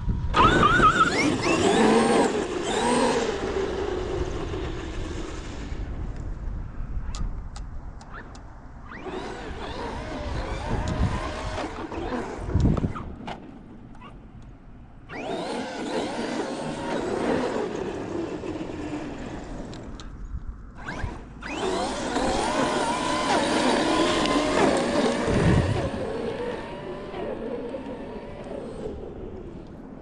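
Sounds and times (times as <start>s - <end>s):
electric motor whining: 0.3s - 4.6s, 8.9s - 13.1s, 15.1s - 20.0s, 20.8s - 29.8s.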